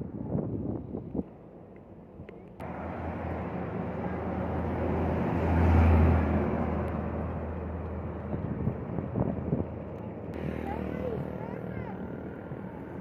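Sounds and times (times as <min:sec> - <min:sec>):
road noise: 0:00.0 - 0:13.0
diesel truck engine running: 0:10.4 - 0:13.0.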